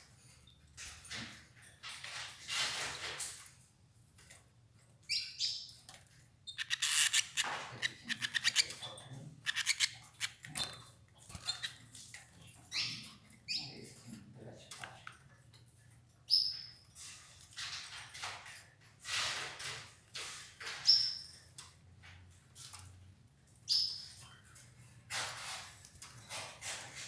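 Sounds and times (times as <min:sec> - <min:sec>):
canaries chirping: 0:05.0 - 0:14.1, 0:16.3 - 0:16.9, 0:20.6 - 0:22.1, 0:23.5 - 0:26.8
quick clicking: 0:06.6 - 0:08.8, 0:09.5 - 0:10.6.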